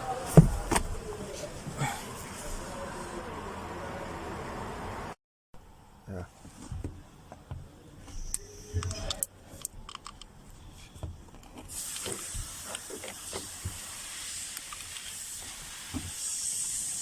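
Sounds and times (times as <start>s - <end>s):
steady high hiss: 11.7s - 17.0s.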